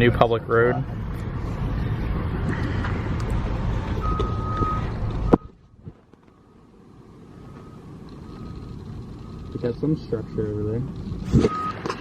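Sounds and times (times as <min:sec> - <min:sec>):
road traffic rumble: 0:00.0 - 0:12.0
faint beeping tone: 0:07.4 - 0:10.4
steady beep: 0:11.3 - 0:11.8.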